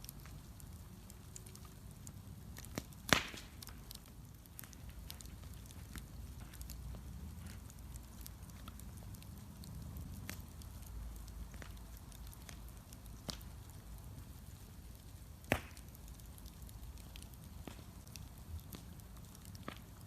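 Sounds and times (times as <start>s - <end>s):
bonfire rumbling: 0.0s - 20.0s
fire crackling and popping: 0.0s - 20.0s.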